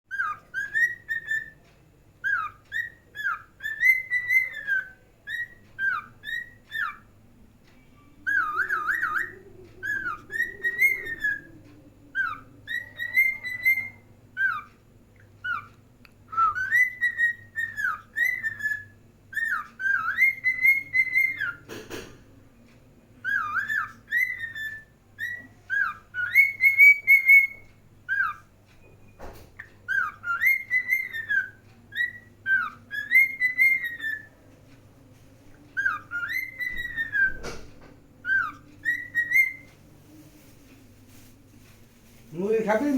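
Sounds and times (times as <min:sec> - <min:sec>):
cockatiel whistling: 0:00.1 - 0:01.6, 0:02.2 - 0:07.1, 0:08.2 - 0:14.7, 0:15.4 - 0:15.7, 0:16.3 - 0:21.6, 0:23.2 - 0:28.9, 0:29.7 - 0:34.4, 0:35.8 - 0:37.6, 0:38.2 - 0:39.7.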